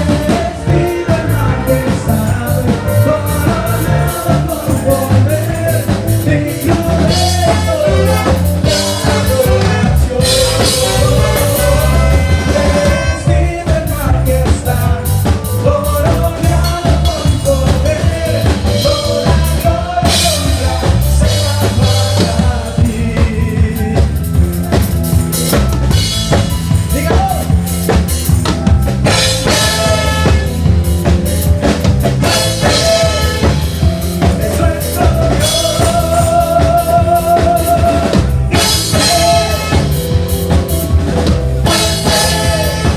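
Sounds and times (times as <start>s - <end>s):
drum kit beat: 0.0s - 42.9s
live band music: 0.0s - 42.9s.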